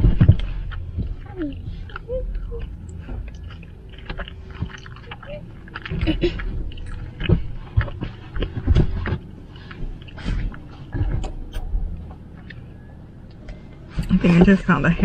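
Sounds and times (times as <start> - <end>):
chewing and lip-smacking: 0.0 - 13.8
wet mouth clicks: 1.5 - 10.6.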